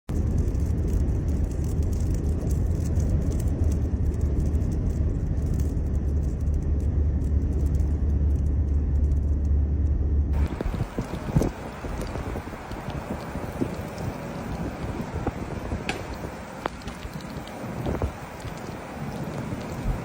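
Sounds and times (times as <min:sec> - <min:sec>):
wind buffeting microphone: 0:10.3 - 0:20.0
small sharp ticks: 0:10.4 - 0:20.0.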